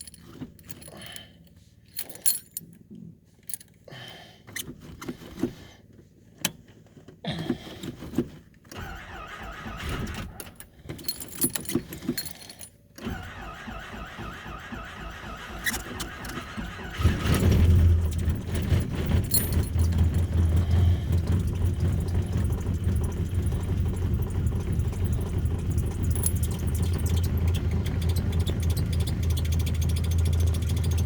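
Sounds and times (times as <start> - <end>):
car keys jangling: 0.0 - 2.8, 3.4 - 3.8, 10.0 - 12.8, 18.2 - 20.8, 25.9 - 27.2
car engine starting cold: 8.7 - 31.0.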